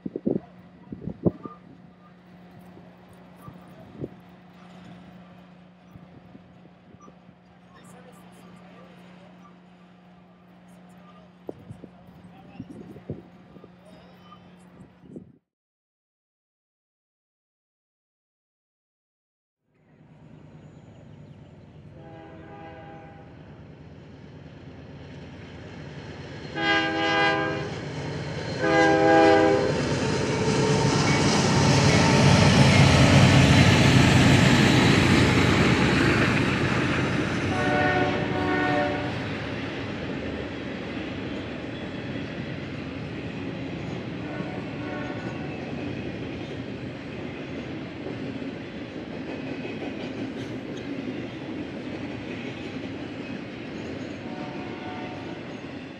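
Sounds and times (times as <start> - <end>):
diesel locomotive rumble: 0.0 - 15.3, 20.0 - 55.6
freight cars rolling by: 0.3 - 15.0
locomotive horn blasts: 22.0 - 23.3, 26.6 - 27.8, 28.6 - 29.8, 37.5 - 39.2, 44.2 - 45.5, 54.2 - 55.4.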